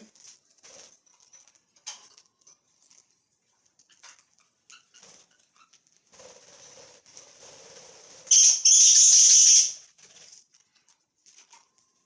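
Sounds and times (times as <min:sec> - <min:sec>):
small clicks and rustles: 0:00.0 - 0:08.3, 0:09.8 - 0:12.0
budgerigars chirping: 0:08.3 - 0:09.8.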